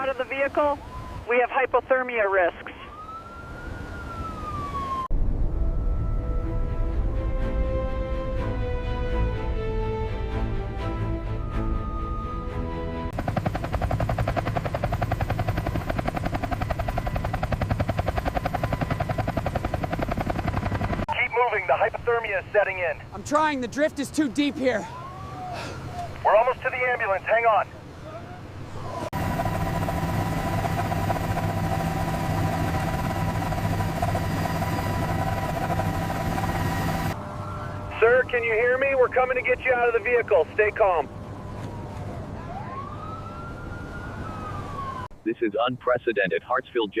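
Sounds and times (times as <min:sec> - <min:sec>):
low hum: 0:04.9 - 0:21.0
music: 0:05.5 - 0:13.1
engine drone with whine: 0:24.9 - 0:45.2.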